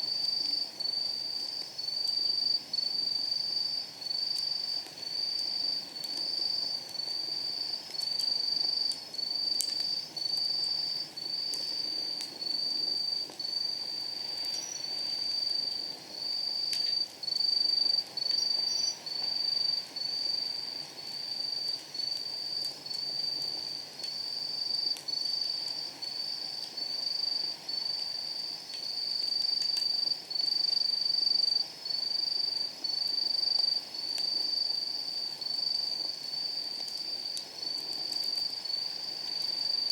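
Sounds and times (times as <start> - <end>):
wood fire popping: 0.0 - 39.9
insect trilling: 14.4 - 20.4.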